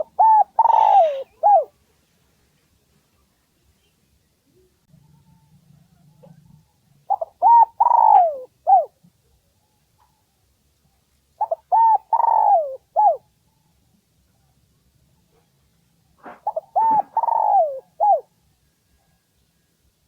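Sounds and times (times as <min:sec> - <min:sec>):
dove cooing: 0:00.0 - 0:01.7, 0:07.1 - 0:09.0, 0:11.4 - 0:13.3, 0:16.2 - 0:18.3.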